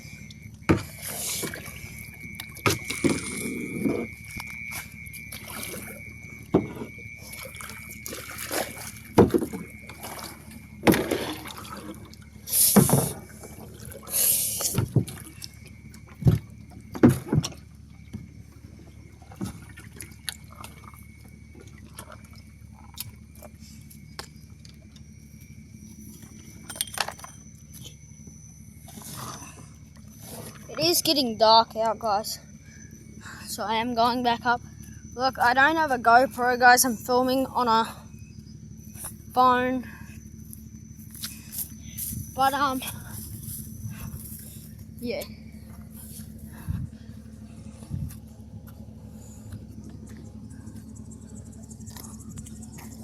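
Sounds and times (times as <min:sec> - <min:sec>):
paddle knocking canoe hull: 0:00.6 - 0:14.1, 0:14.7 - 0:22.9
paddle splashing in water: 0:00.6 - 0:18.0, 0:18.6 - 0:23.6, 0:28.8 - 0:31.1.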